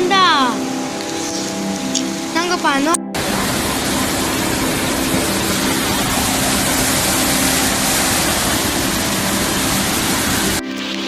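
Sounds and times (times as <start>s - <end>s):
water rushing: 2.2s - 10.7s.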